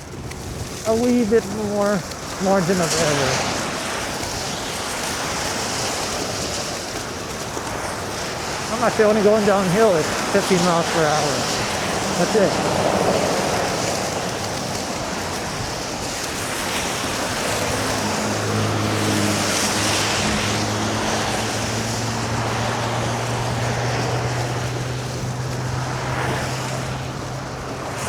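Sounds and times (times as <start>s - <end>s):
wind on microphone: 0.0s - 2.4s
scooter road noise: 0.0s - 28.0s.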